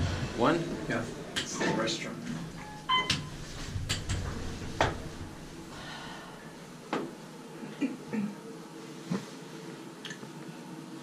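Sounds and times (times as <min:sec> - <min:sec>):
sharp clicks and knocks: 0:03.0 - 0:05.1.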